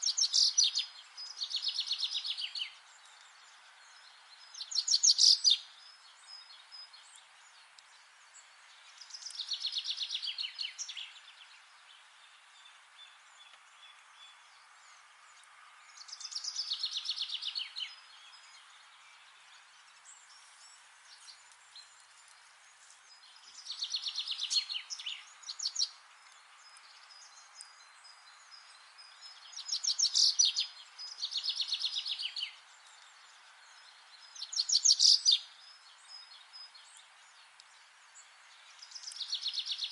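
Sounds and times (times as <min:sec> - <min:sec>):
faint forest ambience hiss: 0:00.0 - 0:39.9
songbird trilling: 0:29.5 - 0:32.6, 0:34.4 - 0:35.5.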